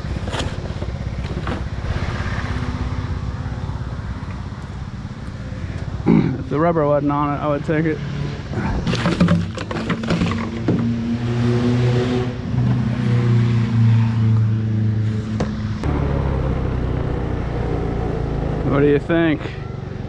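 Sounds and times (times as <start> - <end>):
vehicle engine running: 0.0 - 11.4, 14.2 - 20.0
sharp knocks and clatter: 8.8 - 10.9.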